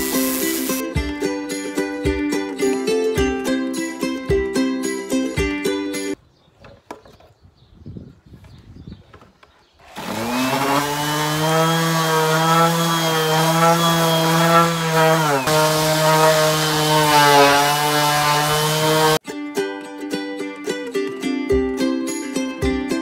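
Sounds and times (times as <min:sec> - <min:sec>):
orbital sander on wood: 0:00.0 - 0:00.8, 0:09.9 - 0:19.2.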